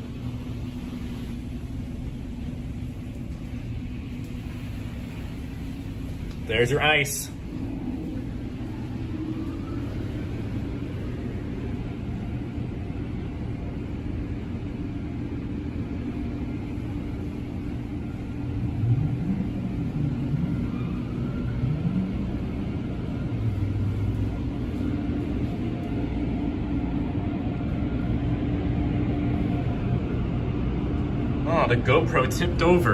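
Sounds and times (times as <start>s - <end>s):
car wash machinery rumbling: 0.0s - 32.9s
short rising hums: 18.0s - 31.4s.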